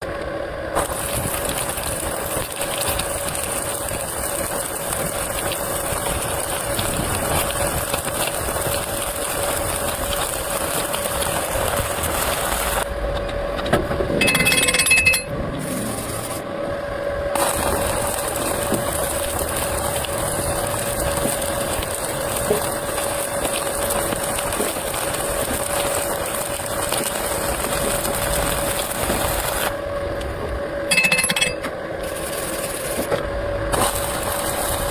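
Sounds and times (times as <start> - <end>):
welding machine hum: 0.0 - 34.9
arc welding crackling hiss: 0.7 - 12.9, 15.6 - 16.5, 17.3 - 30.6, 32.0 - 34.9
metallic clinking and scraping: 14.2 - 16.4, 30.9 - 32.8.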